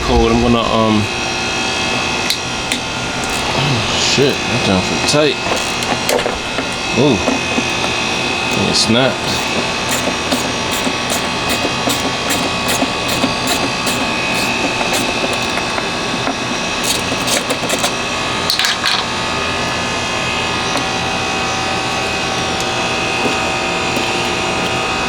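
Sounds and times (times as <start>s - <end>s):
steady mechanical hum: 0.0s - 25.0s
hand tool clicking: 2.3s - 18.8s, 21.8s - 25.0s.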